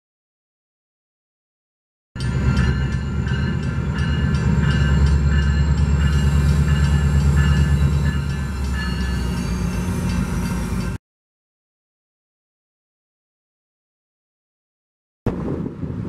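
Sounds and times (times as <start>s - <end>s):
diesel locomotive engine rumbling: 2.2s - 11.0s
locomotive bell ringing: 2.2s - 11.0s.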